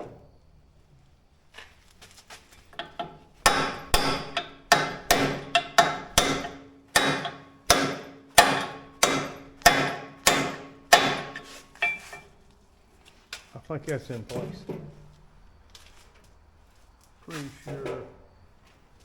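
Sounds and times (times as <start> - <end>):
hammer blows on steel: 2.8 - 12.3.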